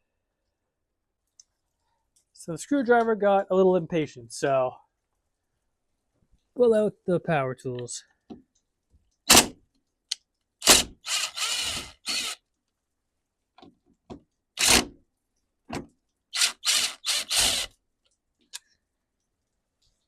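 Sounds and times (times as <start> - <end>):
power drill in short bursts: 10.6 - 12.4, 14.6 - 14.9, 16.4 - 17.7.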